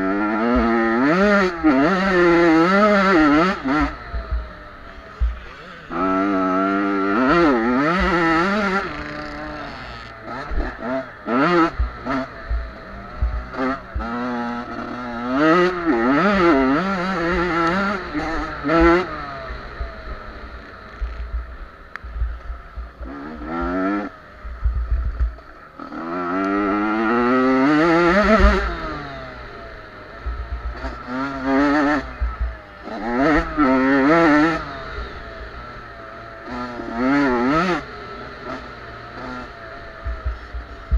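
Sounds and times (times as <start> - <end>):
dirt bike passing close: 0.0 - 40.9
dirt bikes revving: 0.0 - 40.9.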